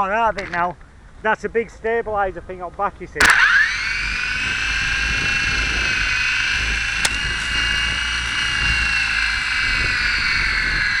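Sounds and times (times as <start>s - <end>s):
sharp click: 0.3s - 0.6s, 2.7s - 3.6s, 7.0s - 7.3s
small electric motor whining: 3.2s - 11.0s.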